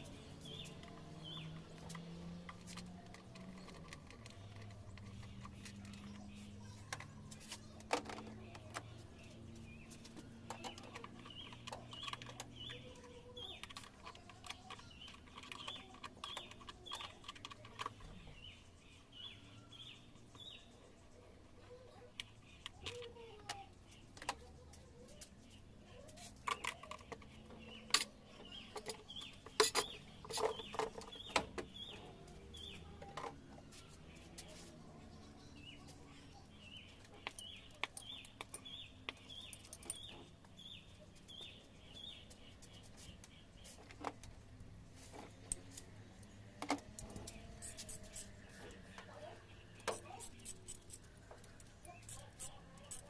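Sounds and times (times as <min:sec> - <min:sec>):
bird chirping: 0:00.0 - 0:53.0
sharp clicks and knocks: 0:26.2 - 0:34.6, 0:36.7 - 0:49.2, 0:49.8 - 0:53.0.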